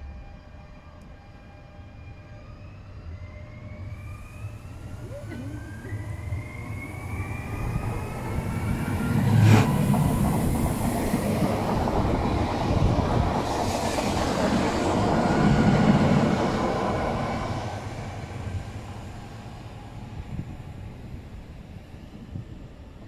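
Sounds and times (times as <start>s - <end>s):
train whine rising: 0.0s - 23.0s
train wheels rumbling and rattling: 4.8s - 19.0s.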